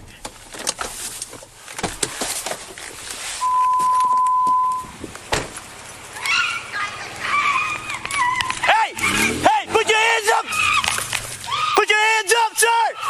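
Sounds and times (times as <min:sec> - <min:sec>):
steady electronic beep: 0:03.4 - 0:04.9.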